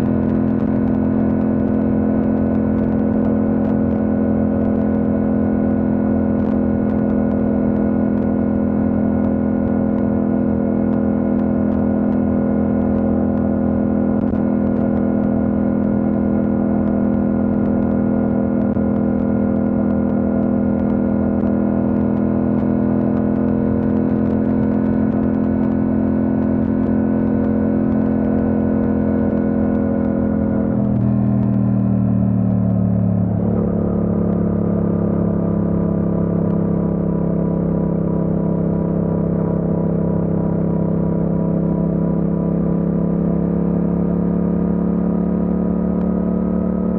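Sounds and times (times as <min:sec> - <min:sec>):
motorcycle engine cruising: 0:00.0 - 0:46.9.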